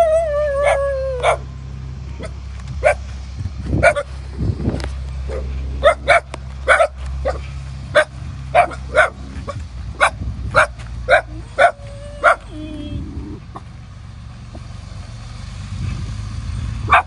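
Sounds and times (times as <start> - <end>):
bulldozer diesel engine drone: 0.0 - 17.0
dog barking: 0.6 - 1.4, 3.8 - 4.1, 5.3 - 7.4, 8.0 - 9.2, 10.0 - 12.5.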